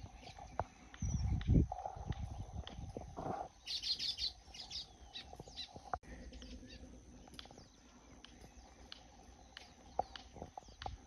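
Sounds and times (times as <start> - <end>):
faint bird chirps: 3.5 - 11.0.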